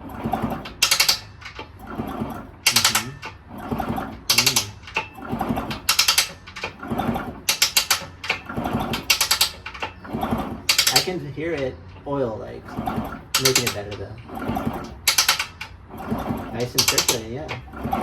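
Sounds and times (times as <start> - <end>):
engine clicking and rattling: 0.0 - 18.0.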